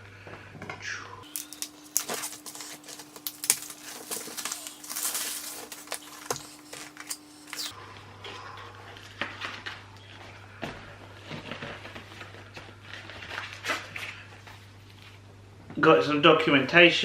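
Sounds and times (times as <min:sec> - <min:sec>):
packaging rustling: 0:01.3 - 0:07.7.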